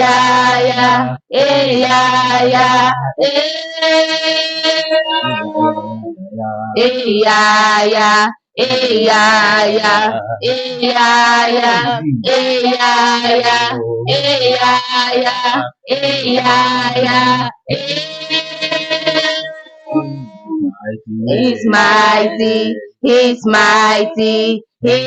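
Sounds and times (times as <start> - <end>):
people singing a worship chorus: 0.0 - 3.2, 6.8 - 17.6, 21.3 - 25.0.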